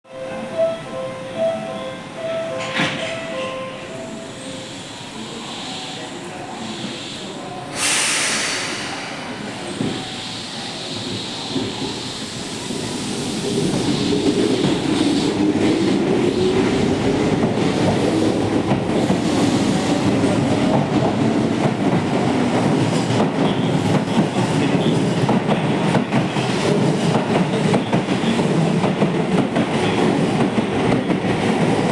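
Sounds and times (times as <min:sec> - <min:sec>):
air hiss: 0:04.6 - 0:15.9.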